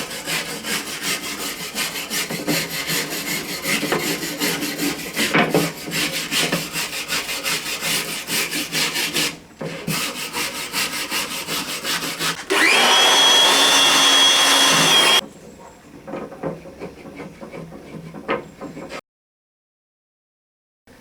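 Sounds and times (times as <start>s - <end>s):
hand tool rasping wood: 0.0s - 15.2s
power tool whining: 12.4s - 15.2s.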